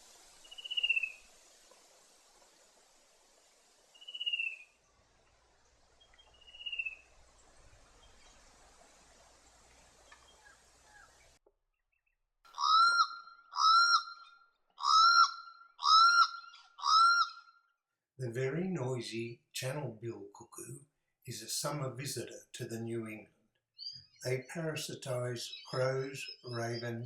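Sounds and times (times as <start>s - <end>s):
descending whistled bird calls: 0.4s - 1.3s, 4.0s - 4.8s, 6.0s - 7.1s, 12.6s - 17.6s, 23.8s - 24.3s, 25.1s - 27.0s
loud harsh bird calls: 12.5s - 17.5s, 25.1s - 27.0s.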